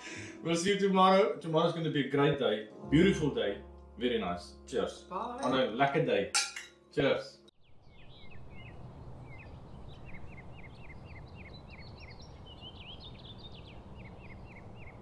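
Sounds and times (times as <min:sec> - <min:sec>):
birds singing: 0:07.6 - 0:15.0.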